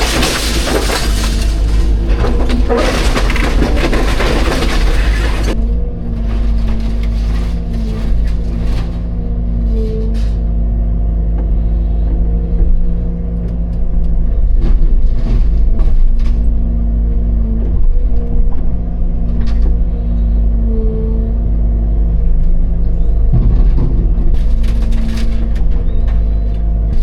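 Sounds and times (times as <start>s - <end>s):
debris crashing and cracking: 0.0s - 10.6s, 11.6s - 27.0s
excavator diesel engine running: 0.0s - 27.0s
hydraulics working: 0.0s - 27.0s.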